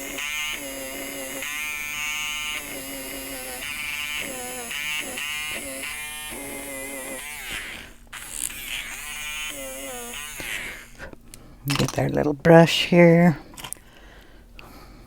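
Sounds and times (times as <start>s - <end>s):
electric eraser buzzing: 0.0s - 11.1s.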